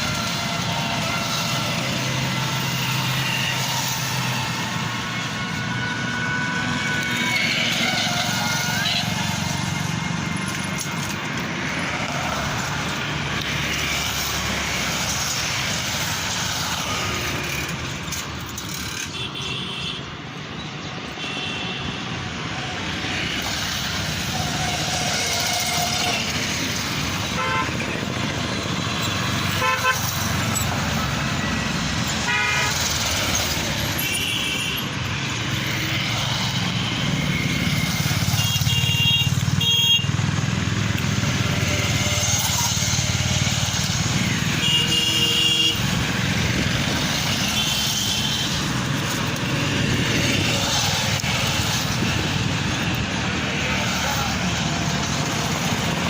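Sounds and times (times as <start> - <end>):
road traffic: 0.0 - 56.0
vehicle horns honking: 19.0 - 20.1, 21.2 - 22.0, 27.3 - 28.0, 29.5 - 30.4, 32.2 - 33.0, 33.9 - 35.0, 38.2 - 40.2, 44.5 - 46.0.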